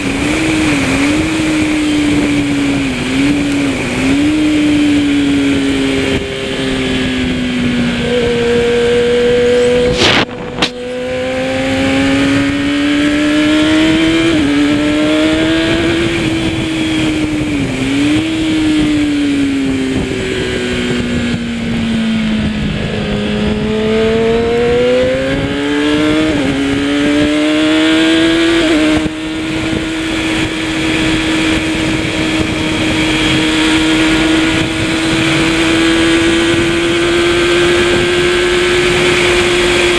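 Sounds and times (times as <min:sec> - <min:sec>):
motorcycle engine revving: 0:00.0 - 0:39.9
wind rush: 0:00.0 - 0:39.9
sharp crack: 0:09.9 - 0:11.0.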